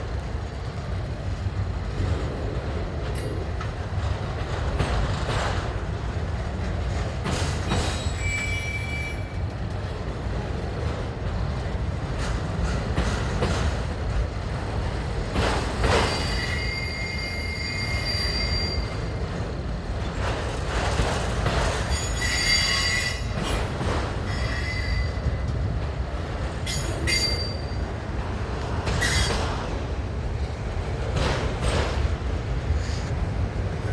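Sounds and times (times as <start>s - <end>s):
train cars clanking: 0.0s - 33.9s
train wheels rumbling on rails: 0.0s - 33.9s
high-pitched wheel squeals: 7.8s - 9.4s, 16.0s - 19.2s, 21.9s - 23.5s, 24.2s - 25.4s, 26.7s - 27.8s, 28.9s - 29.4s.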